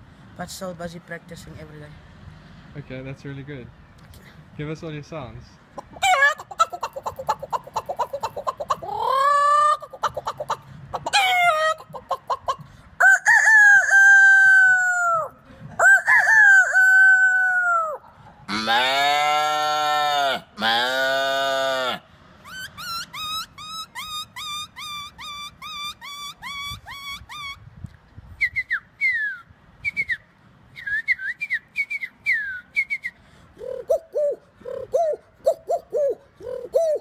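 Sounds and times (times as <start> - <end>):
man imitating animal calls: 5.9 - 12.5, 33.6 - 37.0
sharp falling whistles: 28.4 - 30.2, 30.8 - 33.2
whistled bird chirps: 28.4 - 30.2, 30.8 - 33.2
low cooing notes: 33.6 - 37.0.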